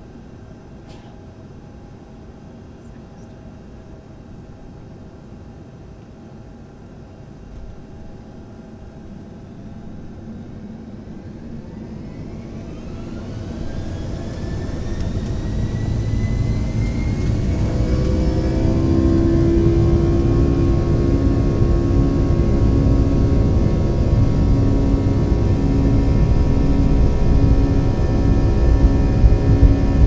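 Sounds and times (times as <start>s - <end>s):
jet engines spooling up: 9.9s - 30.0s.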